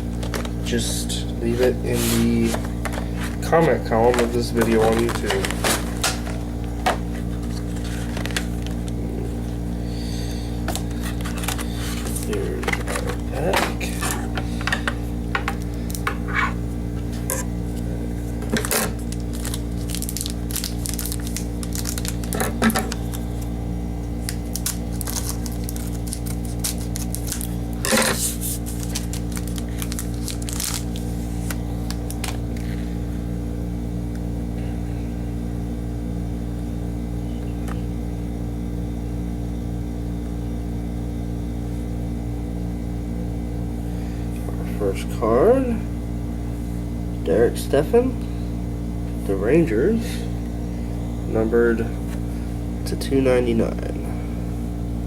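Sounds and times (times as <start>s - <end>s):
low electrical hum: 0.0s - 55.0s
card pack wrapper crinkling: 1.9s - 9.2s, 10.7s - 14.6s, 17.7s - 23.5s, 24.1s - 32.9s
cards clicking: 4.0s - 7.0s.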